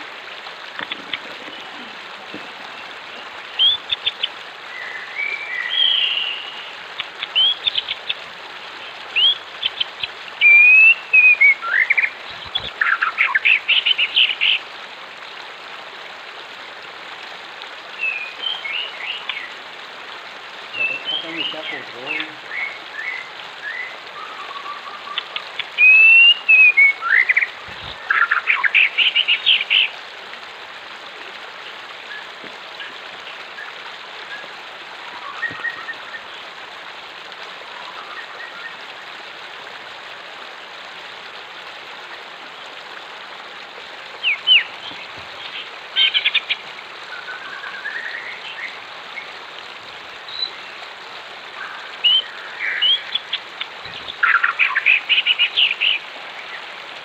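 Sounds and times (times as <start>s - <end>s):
flowing water: 0.0s - 57.0s
birds chirping and whistling: 4.8s - 6.6s, 10.4s - 14.6s, 35.2s - 36.2s.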